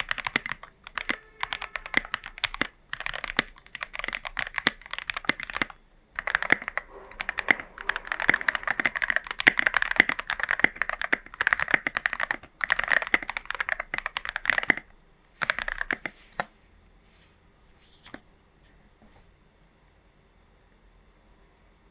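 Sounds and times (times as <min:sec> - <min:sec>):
mechanical keyboard typing: 0:00.0 - 0:16.5.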